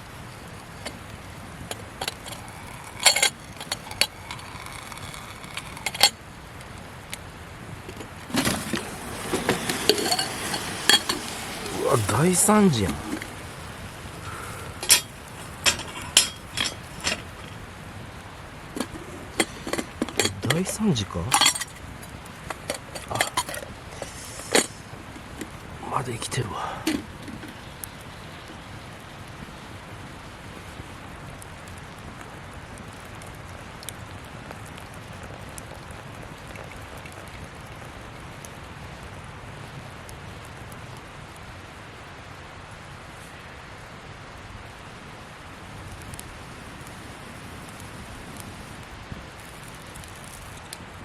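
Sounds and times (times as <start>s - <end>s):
campfire crackles: 0.0s - 51.0s
campfire hissing: 0.0s - 51.0s
metal utensils clinking on pan: 2.0s - 6.2s, 9.2s - 11.3s, 14.8s - 17.3s, 18.8s - 21.8s, 22.5s - 24.8s.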